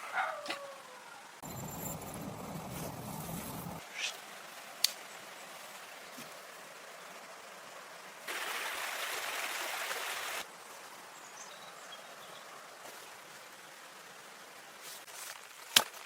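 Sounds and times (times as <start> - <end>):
stream running water: 3.8 - 15.1
loud rush of water: 8.2 - 10.5.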